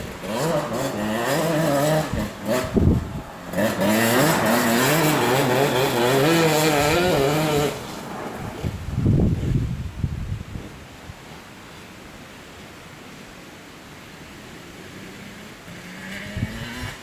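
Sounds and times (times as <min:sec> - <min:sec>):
two-stroke engine revving: 0:00.0 - 0:08.1, 0:14.5 - 0:17.0.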